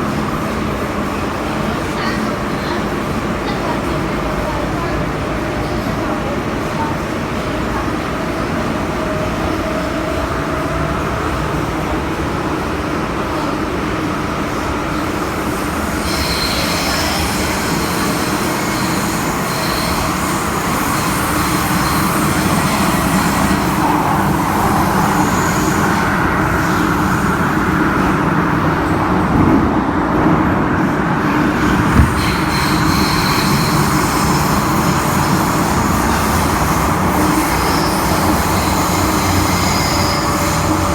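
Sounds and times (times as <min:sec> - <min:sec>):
train wheels and motors rumbling: 0:00.0 - 0:40.9
high-pitched wheel squeal: 0:15.9 - 0:23.9, 0:32.1 - 0:40.9
brief knocks: 0:31.9 - 0:32.4.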